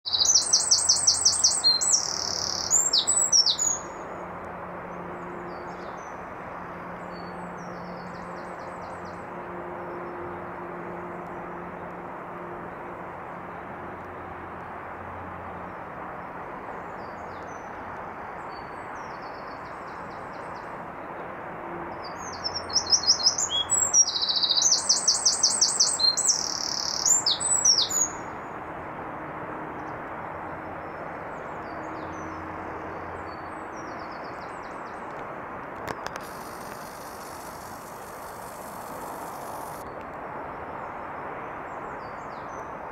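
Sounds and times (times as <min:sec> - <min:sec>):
songbird singing: 0:00.0 - 0:04.1, 0:22.0 - 0:28.4, 0:35.8 - 0:40.0
steady background noise: 0:00.1 - 0:42.9.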